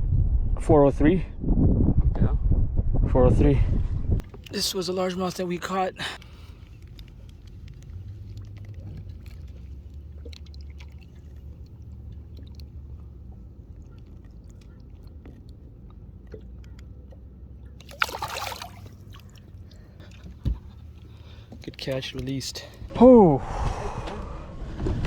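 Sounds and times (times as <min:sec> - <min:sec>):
low rumble: 0:00.0 - 0:04.3, 0:22.8 - 0:25.0
fish splashing into water: 0:06.8 - 0:15.6, 0:17.8 - 0:21.5.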